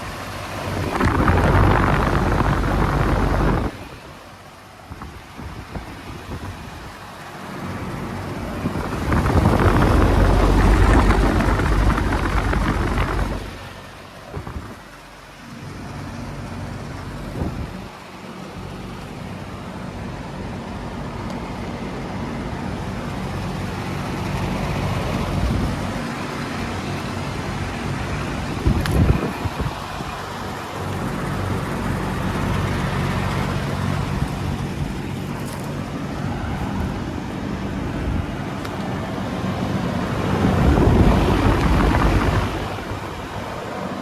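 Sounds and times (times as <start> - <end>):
loud low rumble: 8.5 - 13.8.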